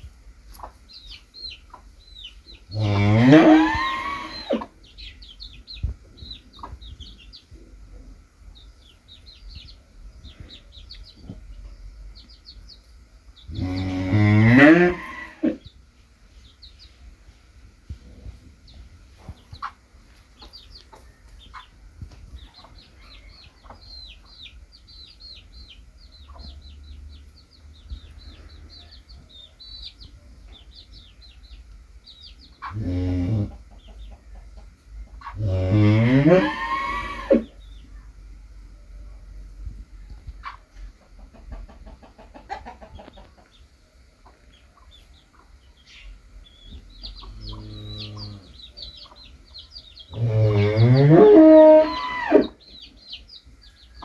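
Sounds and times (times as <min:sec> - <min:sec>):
chicks peeping: 0:00.0 - 0:54.0
cow mooing: 0:02.8 - 0:04.6, 0:13.5 - 0:15.6, 0:32.7 - 0:33.5, 0:35.4 - 0:37.5, 0:47.5 - 0:48.5, 0:50.2 - 0:52.6.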